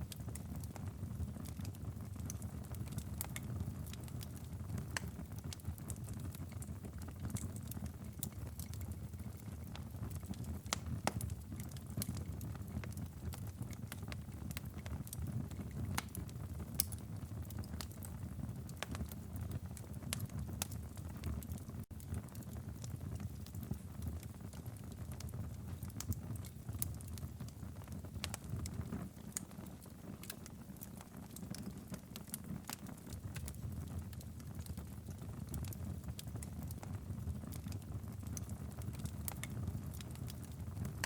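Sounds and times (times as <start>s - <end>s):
wood fire crackling and popping: 0.0s - 41.0s.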